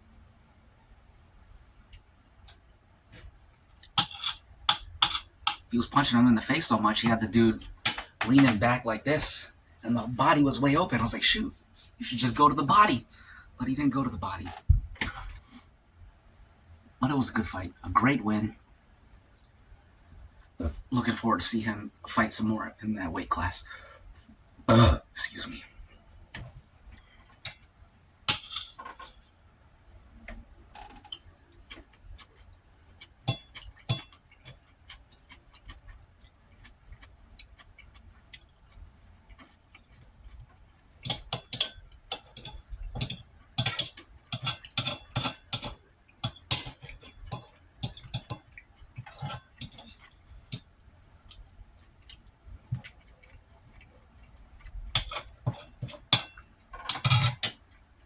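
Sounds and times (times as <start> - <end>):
utensil clinking against a dish: 3.9 - 6.0, 7.6 - 8.6, 28.3 - 29.3, 33.2 - 36.3, 41.0 - 52.1, 54.6 - 57.6.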